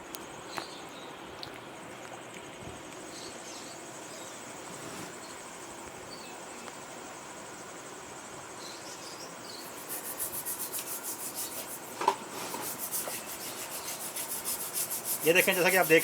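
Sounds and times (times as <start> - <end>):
wire scrubber scraping clay pot: 9.7 - 16.0.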